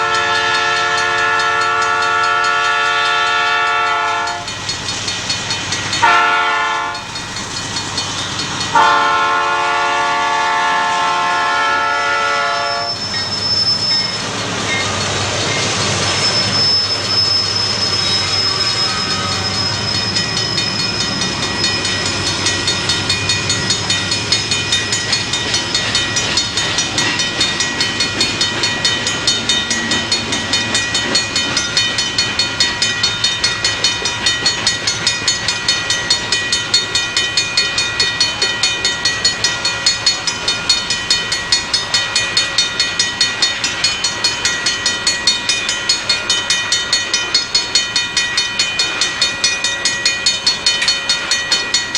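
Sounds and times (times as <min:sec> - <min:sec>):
train wheels clicking: 0:00.0 - 0:51.9
high-pitched wheel squeal: 0:08.0 - 0:31.8.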